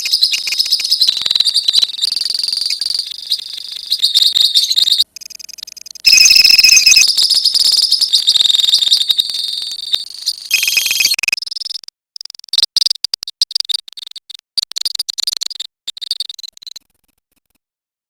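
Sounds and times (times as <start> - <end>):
lovebirds chattering: 0.0 - 9.2.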